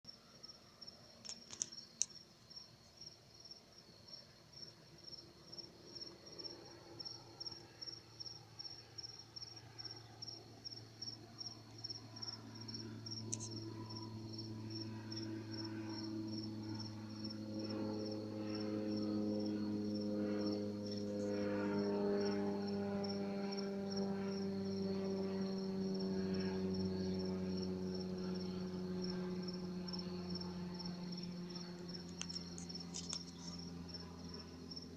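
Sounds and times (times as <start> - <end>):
crickets chirping: 0.1 - 34.9
propeller plane passing low: 0.1 - 34.9.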